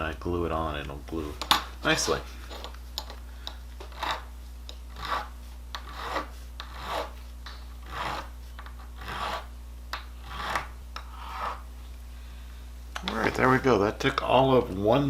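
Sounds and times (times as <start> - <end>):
file rasping on plastic: 3.9 - 4.3, 4.9 - 7.2, 7.8 - 9.5, 10.2 - 11.7.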